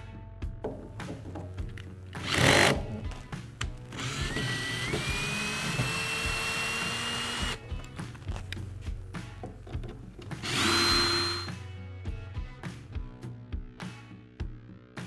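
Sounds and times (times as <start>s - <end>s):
background music: 0.0s - 15.0s
power screwdriver whine: 4.0s - 7.6s, 10.4s - 11.5s.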